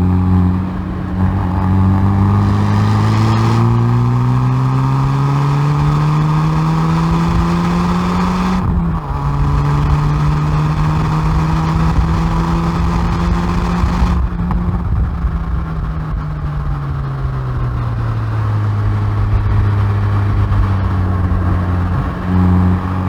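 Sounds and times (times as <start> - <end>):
car exhaust under acceleration: 0.0 - 23.0.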